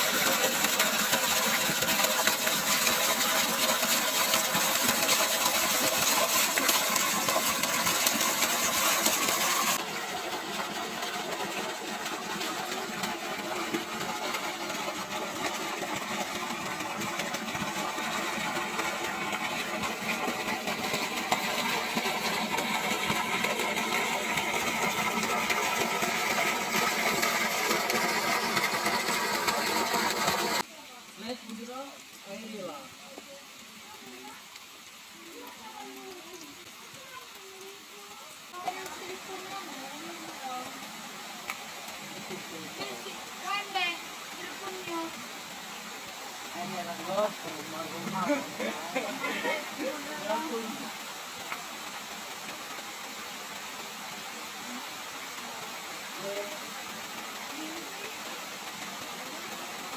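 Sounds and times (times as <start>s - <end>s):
engine running: 0.0s - 30.6s.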